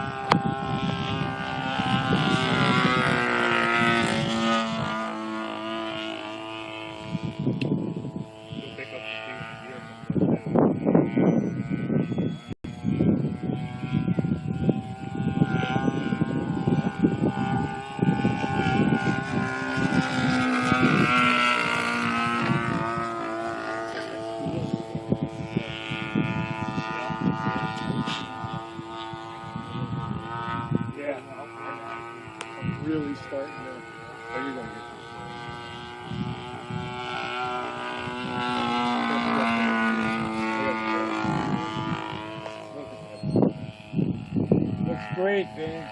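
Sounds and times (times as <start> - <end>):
model plane engine running: 0.0 - 45.9
wind rumble on microphone: 0.0 - 45.9.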